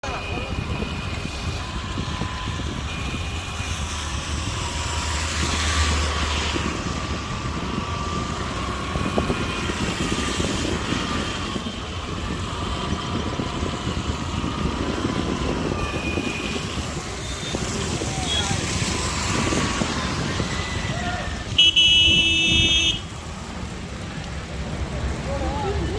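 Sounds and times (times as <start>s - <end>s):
heavy vehicle rumble: 0.0s - 25.9s
vehicles passing: 0.0s - 25.9s
distant car horns: 15.4s - 23.2s.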